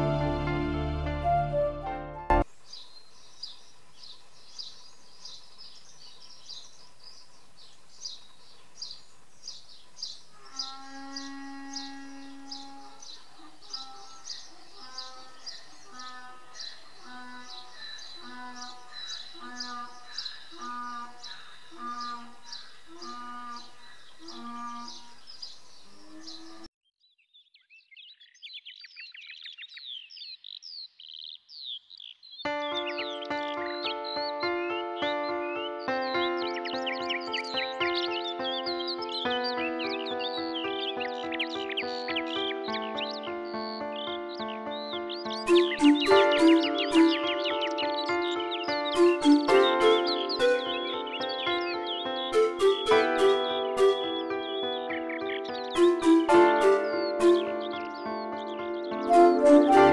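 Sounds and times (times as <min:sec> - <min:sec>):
background music: 0:00.0 - 0:02.5, 0:32.5 - 0:59.9
bird chirping: 0:02.3 - 0:59.9
faint outdoor background noise: 0:02.4 - 0:26.7
songbird whistles and trills: 0:32.6 - 0:59.9.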